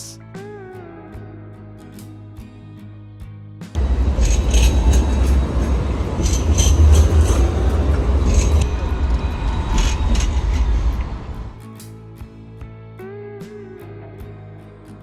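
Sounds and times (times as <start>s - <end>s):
guitar music: 0.0s - 15.0s
high-pitched train squeals: 3.8s - 11.6s
train rumbling: 3.8s - 11.6s.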